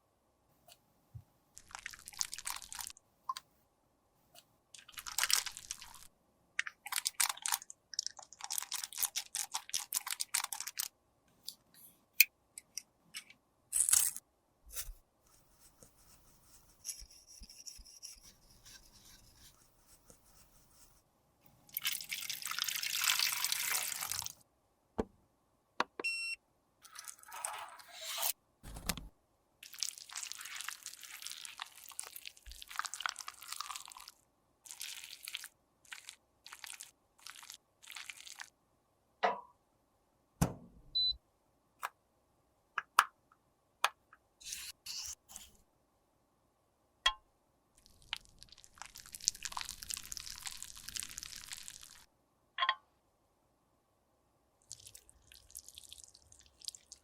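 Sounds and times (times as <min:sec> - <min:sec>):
scraping and brushing noise: 0:26.9 - 0:28.4.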